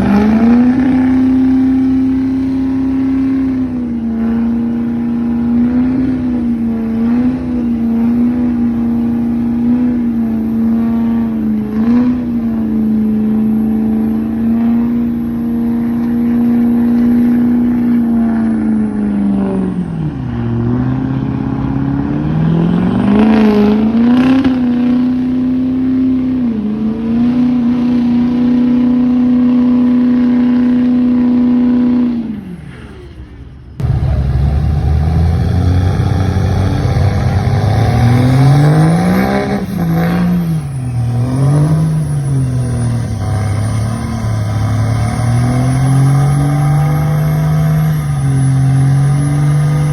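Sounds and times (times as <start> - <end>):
truck engine revving high: 0.0 - 49.9
faint high whine: 32.3 - 49.9.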